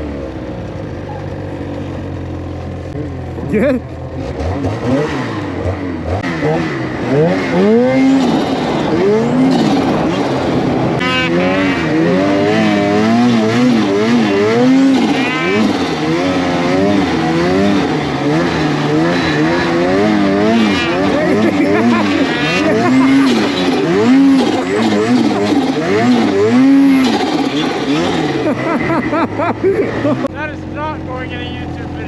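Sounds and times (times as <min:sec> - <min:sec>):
snowmobile engine revving: 0:00.0 - 0:32.0.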